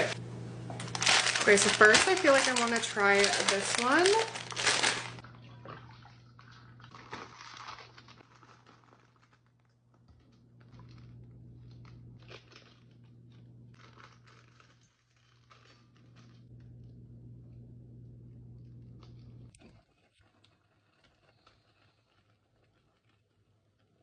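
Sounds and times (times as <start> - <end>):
steady low hum: 0.0 - 6.9, 15.9 - 19.6
plastic wrapper crinkling: 0.8 - 5.2, 6.8 - 16.7.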